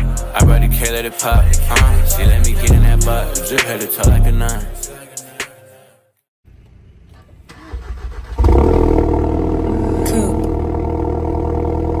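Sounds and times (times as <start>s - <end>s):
car engine starting and idling: 6.5s - 12.0s.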